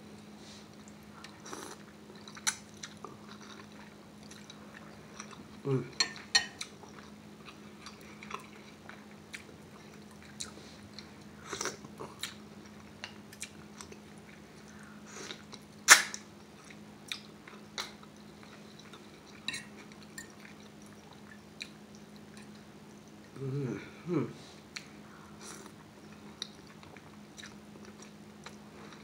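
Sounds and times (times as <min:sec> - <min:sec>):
faint steady hum: 0:00.0 - 0:29.0
wet chewing with smacks: 0:25.6 - 0:29.0.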